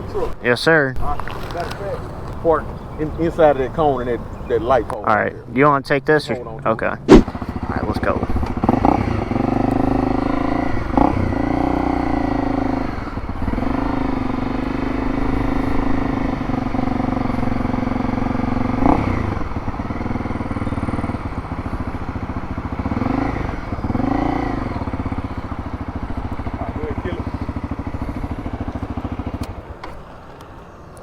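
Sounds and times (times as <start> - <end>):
motorcycle engine running: 7.1 - 30.7.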